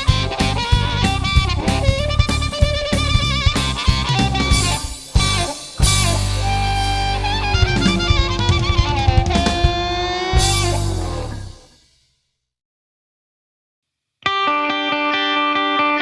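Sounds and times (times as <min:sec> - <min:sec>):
music with guitar and drums: 0:00.0 - 0:11.9, 0:14.2 - 0:16.0.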